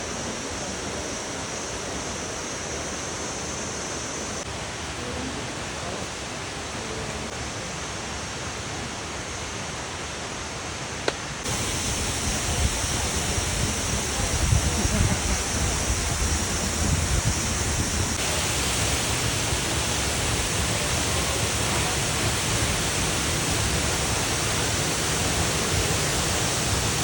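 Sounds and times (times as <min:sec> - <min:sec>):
waterfall rushing: 0:11.4 - 0:27.0.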